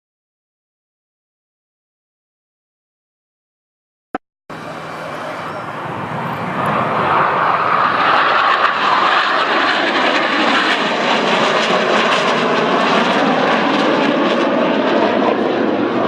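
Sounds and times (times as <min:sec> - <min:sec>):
fighter jets flying by: 0:04.5 - 0:16.0.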